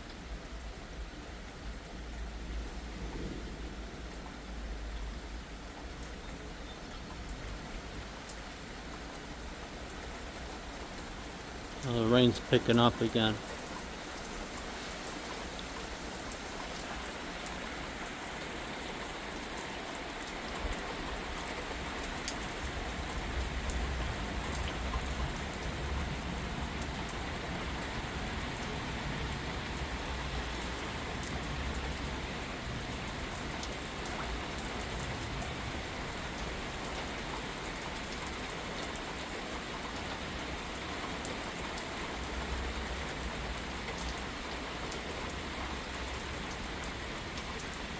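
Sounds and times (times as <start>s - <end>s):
heavy rain pattering: 0.0s - 47.9s
low thunder rumble: 2.3s - 5.4s.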